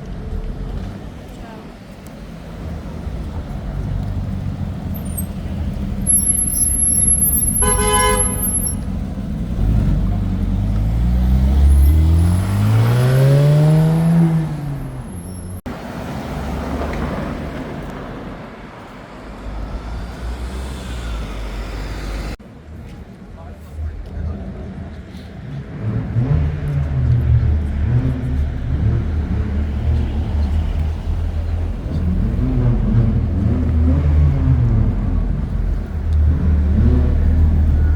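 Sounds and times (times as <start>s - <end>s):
street traffic rumble: 0.0s - 37.9s
car engine revving: 3.8s - 15.6s, 25.8s - 37.9s
car horn toot: 6.1s - 8.9s.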